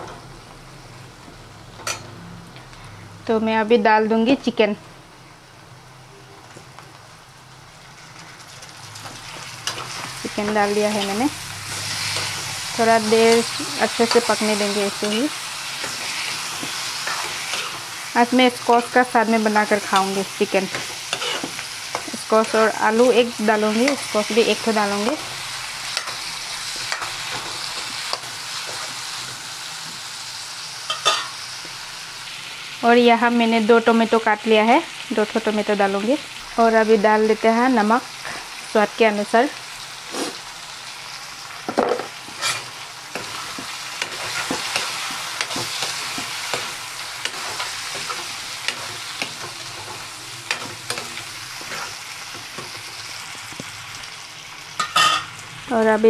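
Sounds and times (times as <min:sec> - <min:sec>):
chicken sizzling in hot oil: 0:06.8 - 0:56.0
metal spoon scraping a pan: 0:13.2 - 0:18.0, 0:18.8 - 0:22.8, 0:30.9 - 0:31.4, 0:41.8 - 0:52.8, 0:54.8 - 0:55.3.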